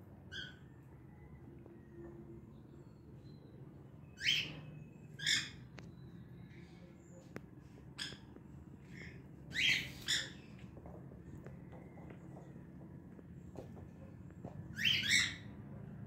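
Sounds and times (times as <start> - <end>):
bird squawking: 9.5 - 10.4, 14.8 - 15.5.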